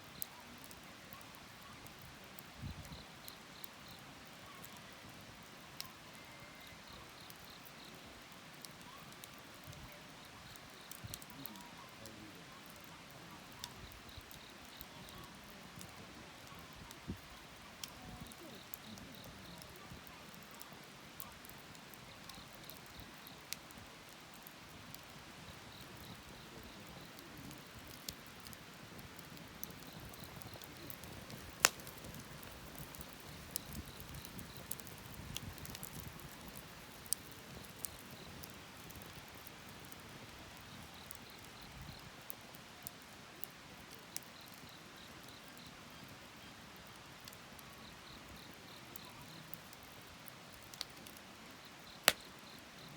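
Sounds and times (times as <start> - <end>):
wood fire crackling: 0.0 - 52.9
sharp pops from fire: 6.7 - 42.1, 47.1 - 51.2, 51.8 - 52.8.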